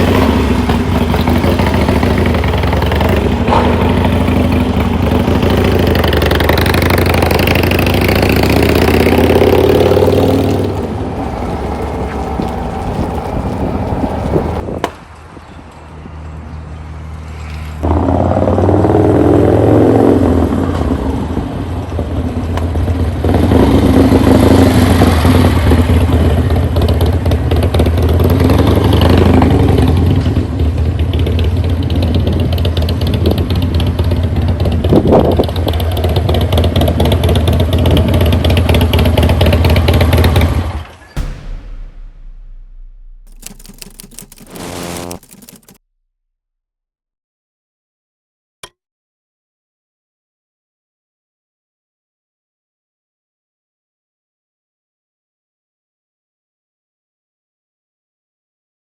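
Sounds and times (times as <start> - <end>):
motorcycle engine accelerating: 0.0 - 14.6, 17.8 - 45.8.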